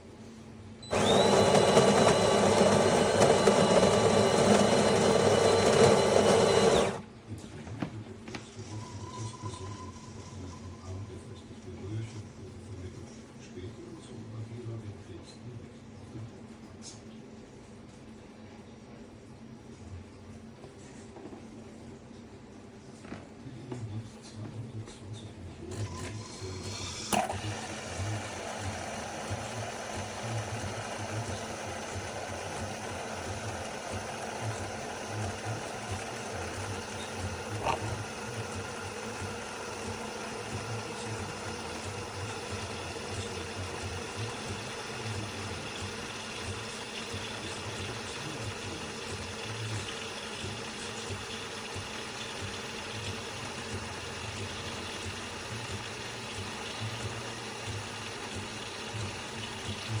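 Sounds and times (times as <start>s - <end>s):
coffee machine pulsing hum: 0.8s - 7.2s, 25.6s - 60.0s.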